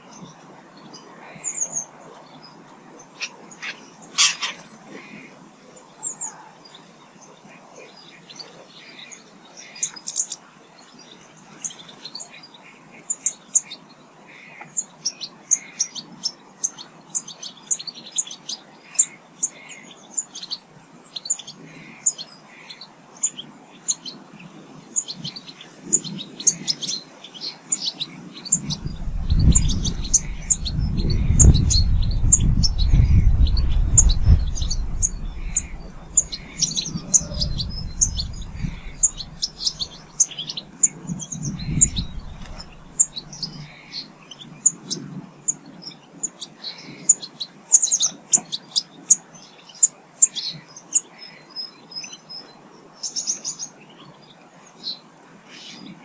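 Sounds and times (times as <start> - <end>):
small birds chirping: 0.0 - 55.0
low rumble: 28.6 - 40.2, 41.0 - 43.7.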